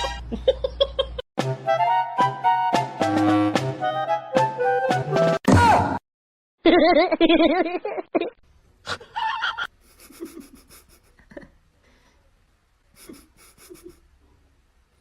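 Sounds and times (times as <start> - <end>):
quick rhythmic panting: 13.0 - 14.1.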